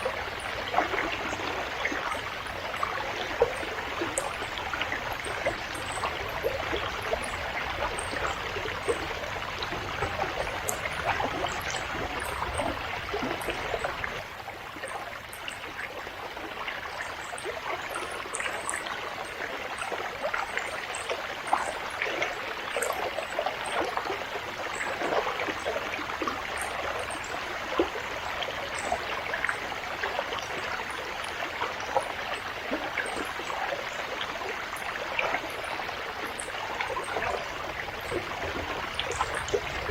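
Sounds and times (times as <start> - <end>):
small splashes and trickles: 0.0 - 39.9
water rushing over rocks: 27.1 - 39.9.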